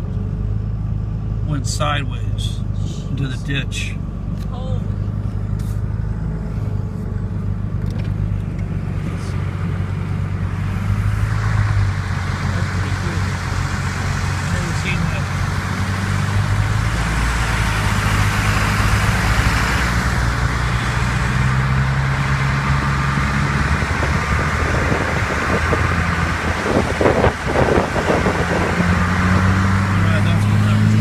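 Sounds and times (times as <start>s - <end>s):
low engine hum: 0.0s - 31.0s
road and tyre noise: 0.0s - 31.0s.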